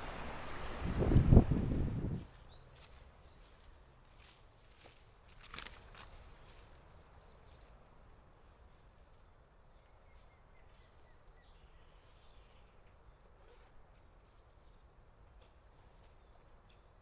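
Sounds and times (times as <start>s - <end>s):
distant bird chirps: 0.0s - 3.2s
faint outdoor background hiss: 0.0s - 17.0s.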